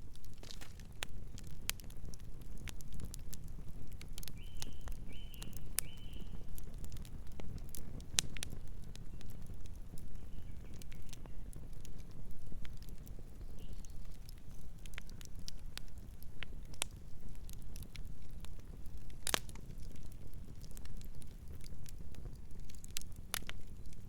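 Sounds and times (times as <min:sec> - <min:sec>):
campfire crackling and popping: 0:00.0 - 0:24.0
low fire rumble: 0:00.0 - 0:24.0.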